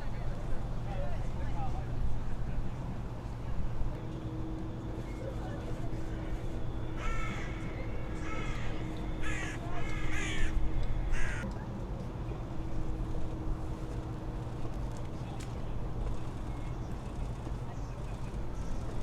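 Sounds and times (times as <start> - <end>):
low hum of traffic: 0.0 - 19.0
crow cawing: 7.0 - 7.6, 8.2 - 11.4.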